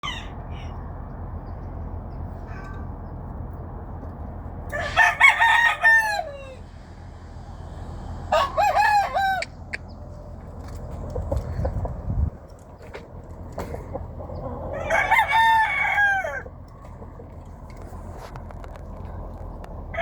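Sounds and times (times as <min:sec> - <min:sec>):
rooster crowing: 0:00.0 - 0:00.7, 0:04.7 - 0:07.4, 0:08.0 - 0:09.8, 0:14.4 - 0:16.6
low background rumble: 0:00.0 - 0:20.0.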